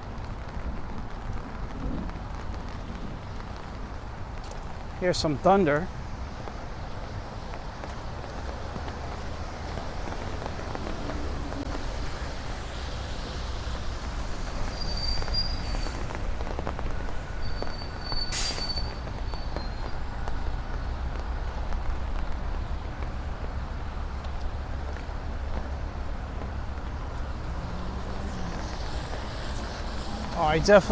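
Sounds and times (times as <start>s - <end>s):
rain hiss: 0.0s - 30.9s
short high squeals: 14.5s - 16.1s, 17.3s - 20.0s.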